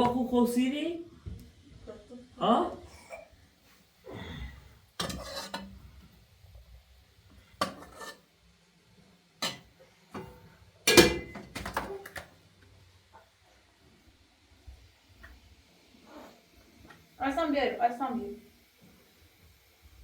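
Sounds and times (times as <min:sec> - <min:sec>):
dishes and cutlery clattering: 0:05.0 - 0:05.7, 0:07.6 - 0:08.2, 0:09.4 - 0:12.2.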